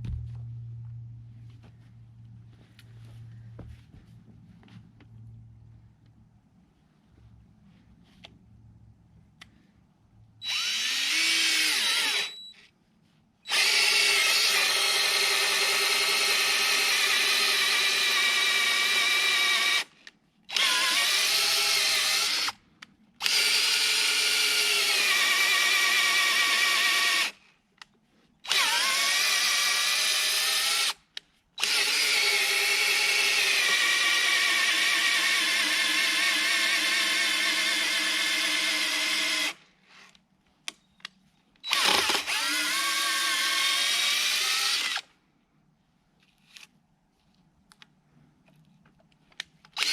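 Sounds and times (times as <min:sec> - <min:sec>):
power drill whining: 0:10.4 - 0:12.7, 0:13.5 - 0:22.6, 0:23.2 - 0:27.4, 0:28.4 - 0:31.0, 0:31.6 - 0:39.6, 0:41.6 - 0:45.1.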